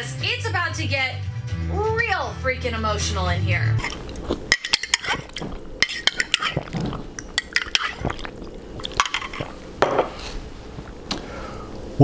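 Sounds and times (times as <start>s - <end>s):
spoon clinking against glass: 3.8s - 10.2s
wet liquid sounds: 3.8s - 11.6s.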